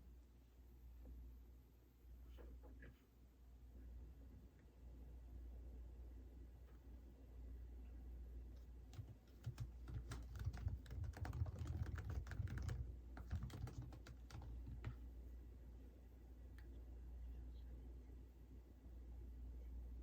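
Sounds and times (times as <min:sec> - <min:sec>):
typing on computer keyboard: 0:08.9 - 0:15.0.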